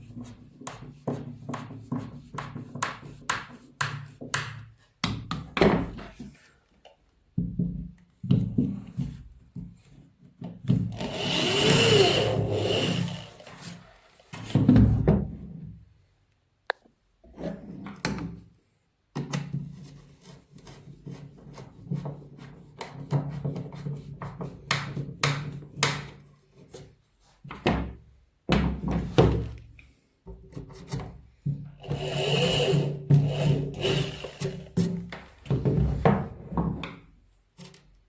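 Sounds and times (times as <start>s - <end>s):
disc sander motor humming: 11.1s - 13.4s, 32.2s - 34.7s.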